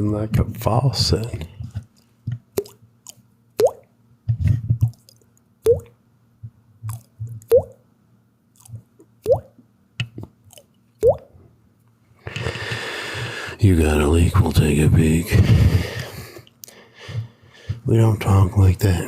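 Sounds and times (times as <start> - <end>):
water drip plinks: 3.6 - 3.9, 5.7 - 5.9, 6.9 - 7.8, 9.2 - 10.2, 11.0 - 11.3.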